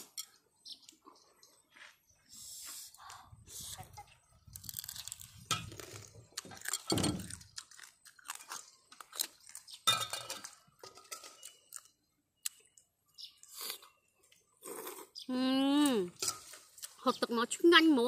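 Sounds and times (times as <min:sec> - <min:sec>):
crunching crab shells while chewing: 0:04.4 - 0:14.0.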